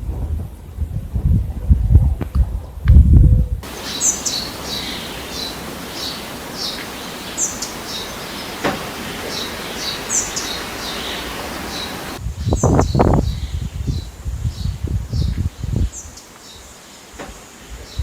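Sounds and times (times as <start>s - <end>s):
outdoor hiss: 3.6s - 12.3s, 13.8s - 18.0s
small birds chirping: 3.6s - 18.0s.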